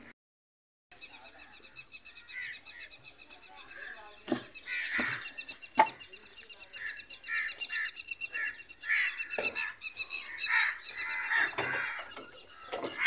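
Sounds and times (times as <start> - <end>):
birds chirping and calling: 0.9 - 13.0.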